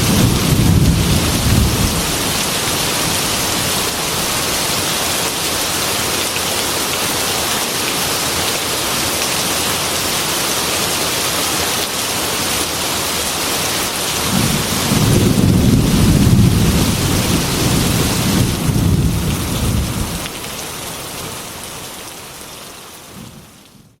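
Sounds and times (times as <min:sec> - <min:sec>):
thunder rumbling: 0:00.0 - 0:04.8, 0:14.3 - 0:20.3, 0:23.1 - 0:24.0
heavy rain on a glass window: 0:00.0 - 0:24.0.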